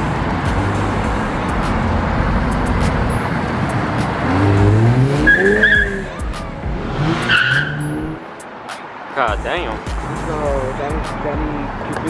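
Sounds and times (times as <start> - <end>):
car engine revving: 0.0 - 8.3
high steady squeal: 0.8 - 8.2.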